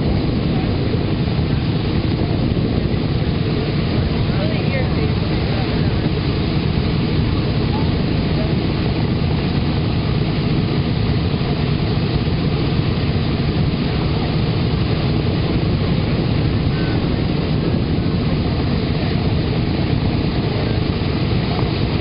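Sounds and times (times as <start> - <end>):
propeller engines rumbling: 0.0 - 22.0.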